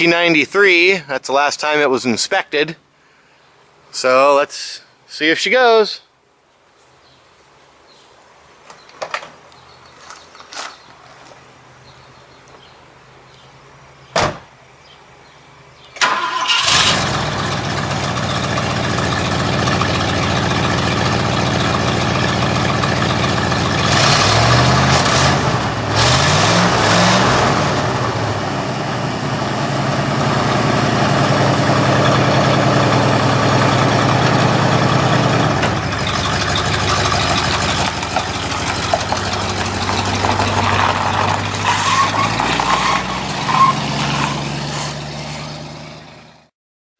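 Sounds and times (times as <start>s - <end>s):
car engine starting and revving: 16.0s - 46.5s.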